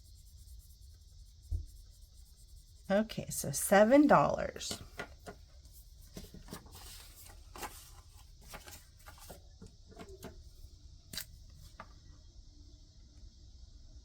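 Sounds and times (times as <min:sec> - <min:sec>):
marker on paper: 0:00.0 - 0:07.0
low steady hum: 0:00.0 - 0:14.0
paper rustling: 0:03.8 - 0:10.4.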